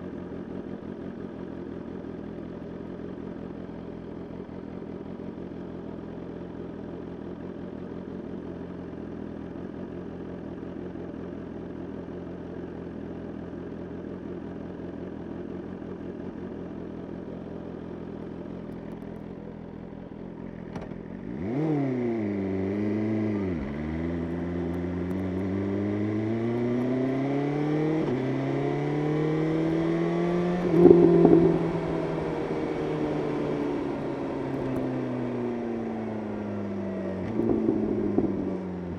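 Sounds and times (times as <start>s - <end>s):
motorcycle engine revving: 21.2s - 38.9s.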